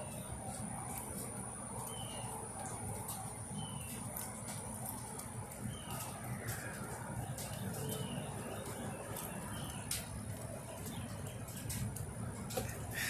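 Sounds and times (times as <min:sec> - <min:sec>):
bird chirping: 0:01.8 - 0:11.8.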